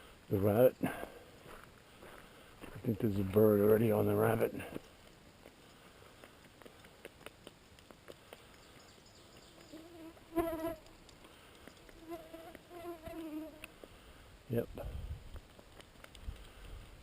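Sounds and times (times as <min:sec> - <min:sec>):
flying insect buzzing: 0:09.6 - 0:10.9, 0:11.9 - 0:13.8.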